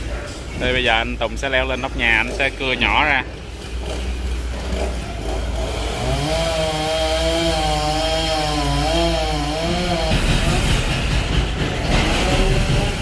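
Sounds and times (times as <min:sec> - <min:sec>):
chainsaw running: 0:03.6 - 0:10.9, 0:11.8 - 0:13.0.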